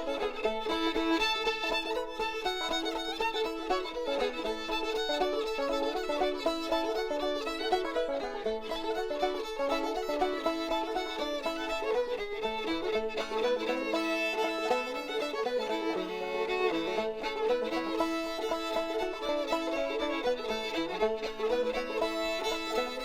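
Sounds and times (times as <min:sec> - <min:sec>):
upbeat bluegrass fiddle tune: 0:00.0 - 0:23.0.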